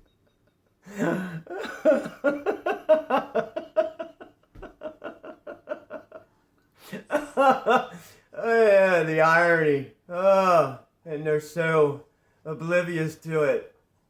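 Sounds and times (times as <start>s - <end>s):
person laughing hard: 0.8s - 8.6s.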